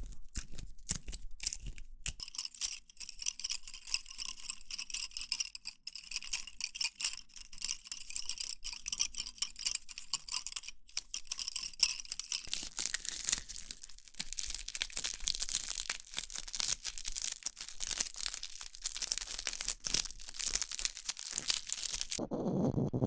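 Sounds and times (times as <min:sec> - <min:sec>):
crisp material crinkling: 0:00.0 - 0:01.9, 0:12.1 - 0:22.2.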